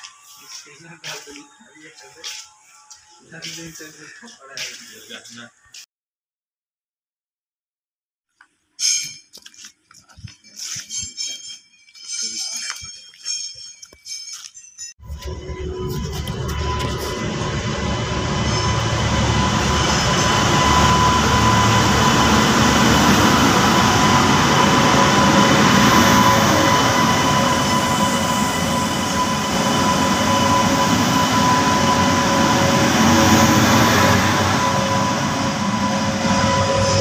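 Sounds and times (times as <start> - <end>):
thin high whine: 15.0 - 37.0
train wheels rumbling and rattling: 15.0 - 37.0.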